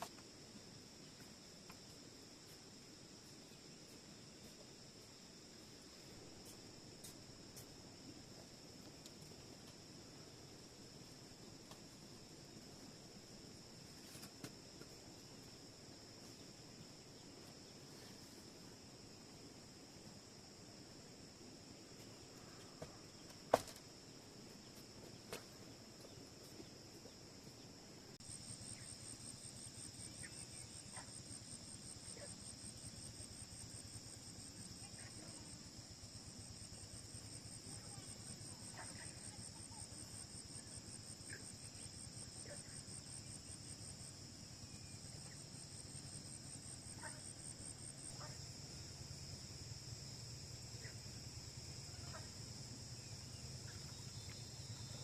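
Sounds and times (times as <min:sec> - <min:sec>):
insects trilling: 0:03.2 - 0:55.0.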